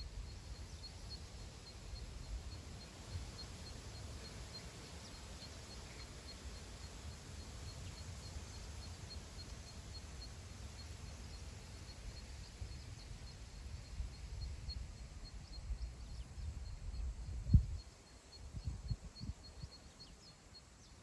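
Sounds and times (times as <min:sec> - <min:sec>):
wind blowing over grassland: 0:00.0 - 0:20.3
wind buffeting microphone: 0:13.8 - 0:19.7.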